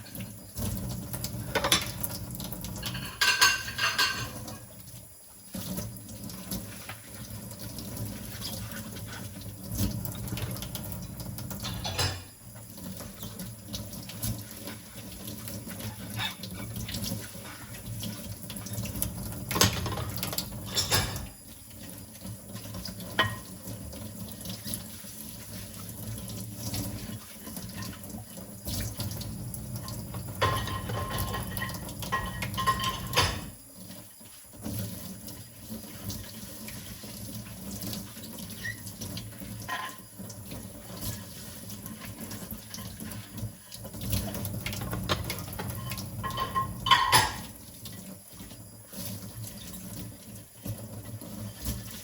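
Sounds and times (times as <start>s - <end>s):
tap water running into sink: 0.0s - 52.0s
dishes clinking: 1.5s - 2.1s, 2.8s - 4.7s, 11.6s - 12.4s, 19.5s - 21.4s, 30.4s - 33.6s, 39.6s - 40.0s, 44.8s - 47.6s.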